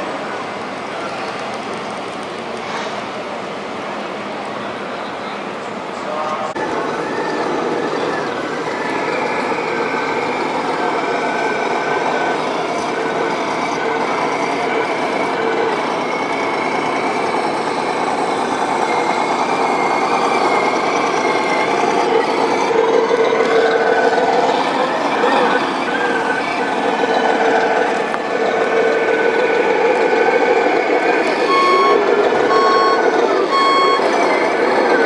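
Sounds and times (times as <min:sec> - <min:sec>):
simulated diesel truck engine: 0:00.0 - 0:35.0.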